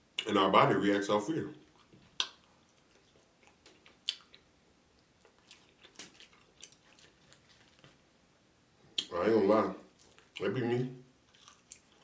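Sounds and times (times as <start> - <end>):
person chewing fried chicken: 1.6 - 8.0, 9.9 - 10.5, 11.2 - 12.0
wet mouth clicks: 1.7 - 4.5, 5.3 - 7.0.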